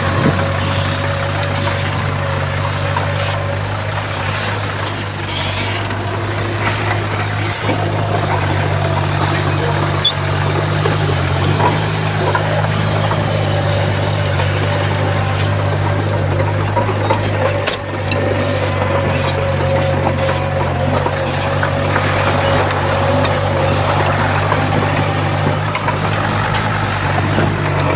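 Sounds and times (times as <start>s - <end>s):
diesel engine running: 0.0s - 27.9s.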